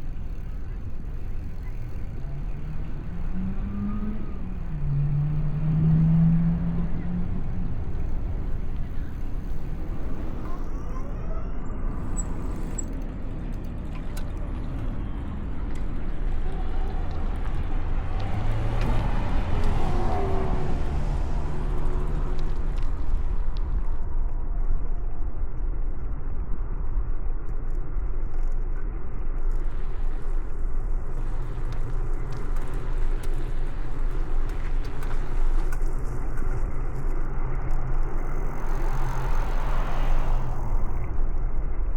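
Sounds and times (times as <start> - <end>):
road traffic rumble: 0.0 - 24.6, 28.6 - 41.9
vehicle passing by: 3.0 - 8.2, 16.3 - 23.0, 37.6 - 41.1.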